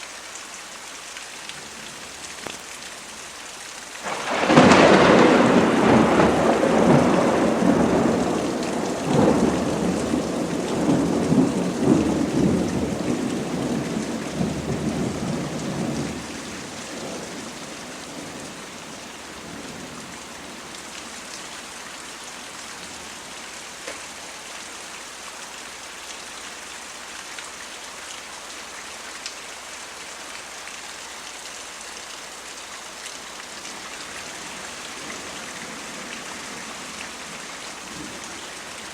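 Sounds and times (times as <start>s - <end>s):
heavy rain: 0.0s - 38.9s
thunder rumbling: 4.0s - 20.8s.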